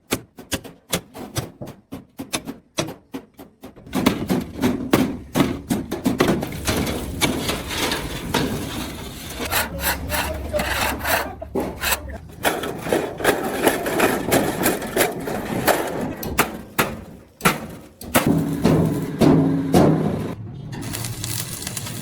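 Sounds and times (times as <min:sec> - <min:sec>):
rough metal scraping: 0:04.2 - 0:22.0.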